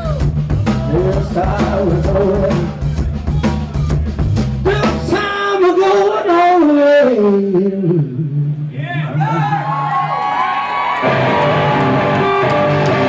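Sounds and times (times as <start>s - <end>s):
rock band playing live: 0.0s - 6.2s, 11.0s - 13.0s
drums: 0.0s - 13.0s.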